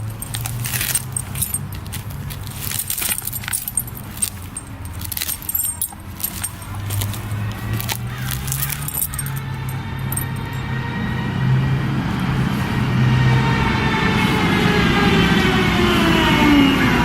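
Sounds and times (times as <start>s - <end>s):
metallic jingling and clinking: 0.0s - 10.8s.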